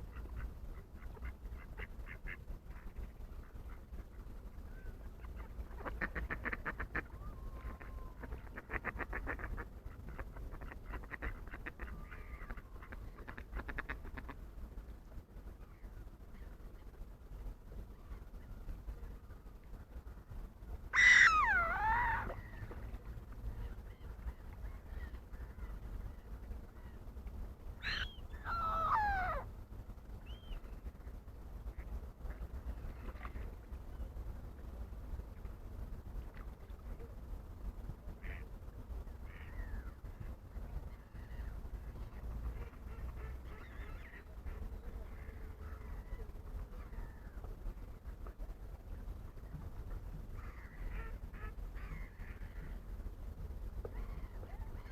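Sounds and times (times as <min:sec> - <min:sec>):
wild bird calling: 0:04.7 - 0:14.3, 0:20.9 - 0:22.9, 0:27.8 - 0:29.5.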